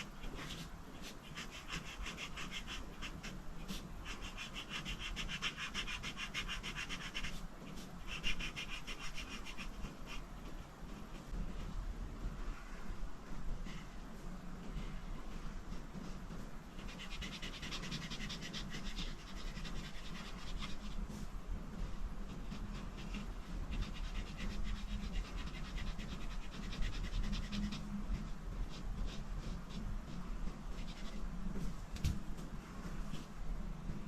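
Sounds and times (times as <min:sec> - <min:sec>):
coloring strokes scratching paper: 0:00.0 - 0:11.3, 0:16.0 - 0:31.7.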